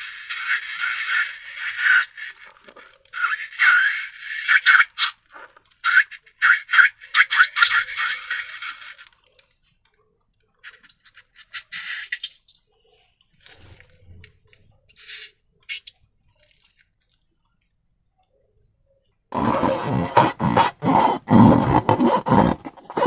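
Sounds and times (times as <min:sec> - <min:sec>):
slime squeezed and pulled by hand: 0:00.0 - 0:09.2, 0:10.6 - 0:12.7, 0:14.9 - 0:17.0.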